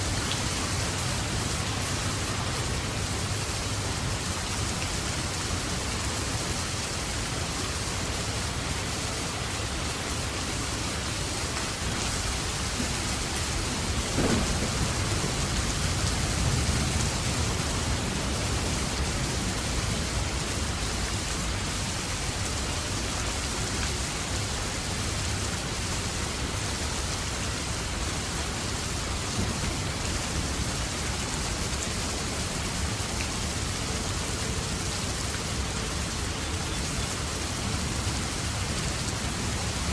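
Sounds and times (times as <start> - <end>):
steady rain falling: 0.0 - 39.9
low roll of thunder: 13.2 - 19.2.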